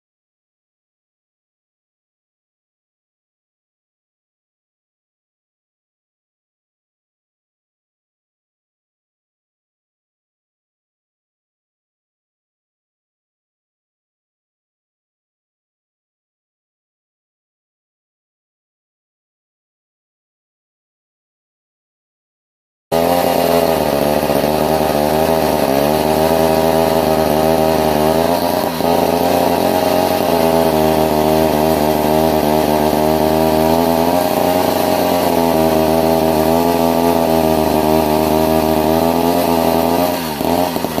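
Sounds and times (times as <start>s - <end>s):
reciprocating saw cutting: 22.9s - 41.0s.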